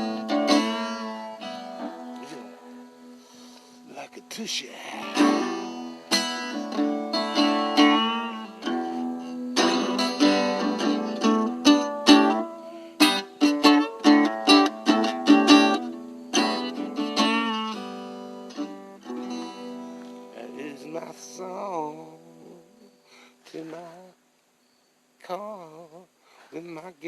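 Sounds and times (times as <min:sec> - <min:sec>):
guitar playing solo: 0:00.0 - 0:21.5.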